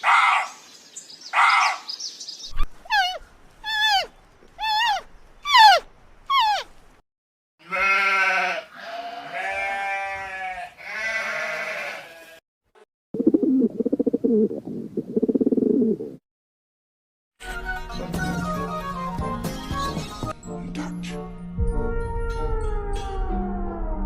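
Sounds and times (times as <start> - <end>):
short falling calls: 2.6 - 6.8
sheep or goat bleating: 7.6 - 12.4.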